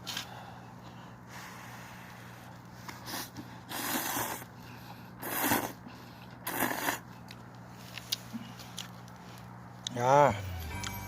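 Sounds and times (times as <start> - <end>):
person slurping noodles: 3.0 - 4.5, 5.2 - 5.8, 6.4 - 7.0
low hum: 8.4 - 11.0.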